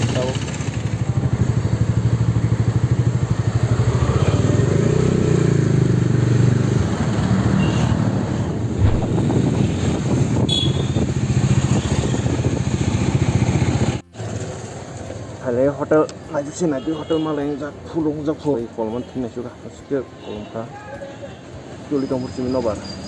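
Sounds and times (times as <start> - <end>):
motorcycle engine running: 0.0 - 6.3, 8.8 - 15.1.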